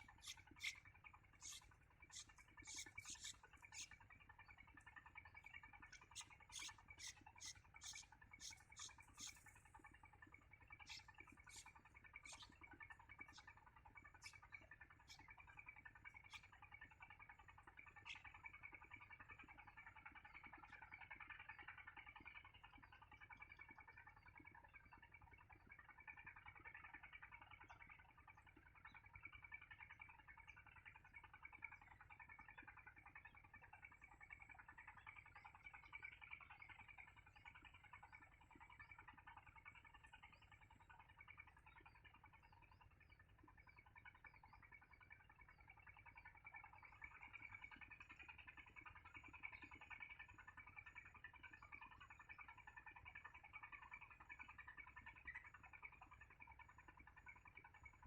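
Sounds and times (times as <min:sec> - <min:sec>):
high chirping calls of small animals: 0:00.0 - 0:04.6, 0:05.2 - 0:09.8, 0:10.7 - 0:15.4.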